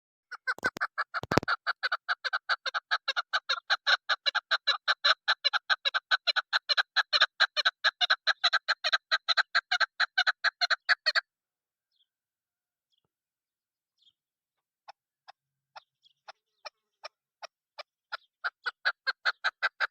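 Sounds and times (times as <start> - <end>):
partridge clucking call: 0.3 - 11.3, 14.9 - 19.9
sharp clicks: 0.6 - 1.5.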